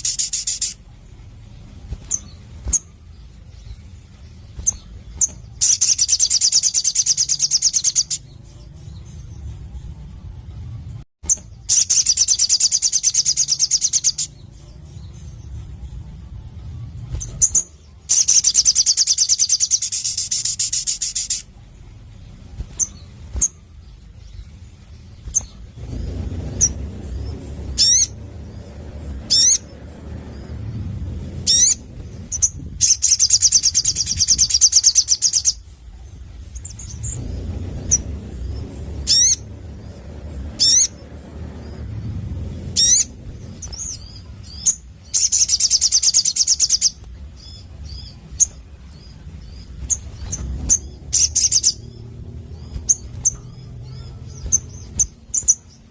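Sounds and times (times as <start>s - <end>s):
sunbird trilling: 0.0s - 9.9s, 11.3s - 55.9s
low background rumble: 0.0s - 55.9s
rising whistled bird notes: 24.2s - 55.8s.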